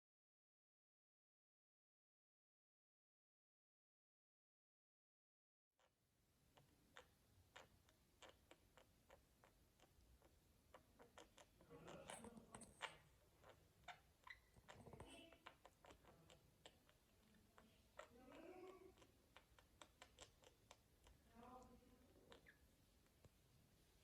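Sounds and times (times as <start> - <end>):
small irregular clicks: 6.5 - 23.5
budgies chirping and chattering: 10.7 - 22.6.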